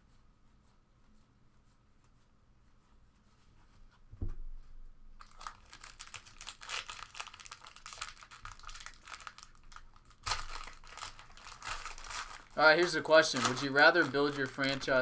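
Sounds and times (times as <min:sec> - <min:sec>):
dull thump: 0:04.1 - 0:04.6
plastic wrapper crinkling and tearing: 0:05.2 - 0:15.0.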